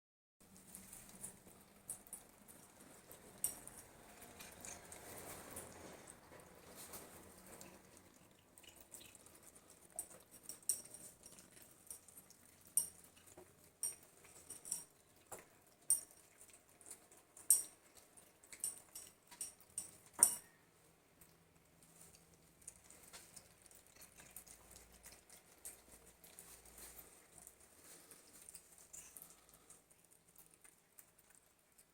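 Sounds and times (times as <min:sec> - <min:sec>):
cats crunching treats: 0:00.5 - 0:20.2, 0:21.2 - 0:31.9.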